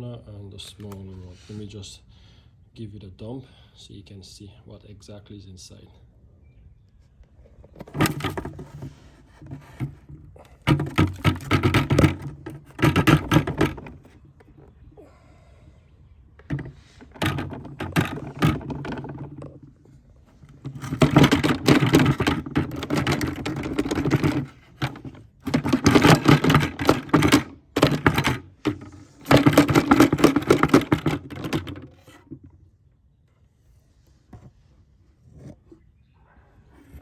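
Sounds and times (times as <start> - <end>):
grit rattling out of canister: 7.4 - 15.2, 16.4 - 32.6.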